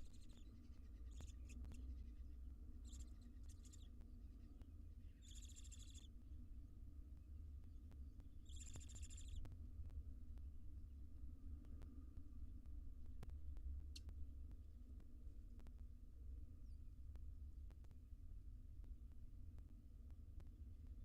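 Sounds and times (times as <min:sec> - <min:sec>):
low hum: 0:00.0 - 0:18.2
owl hissing calls: 0:02.8 - 0:03.9, 0:05.2 - 0:06.1.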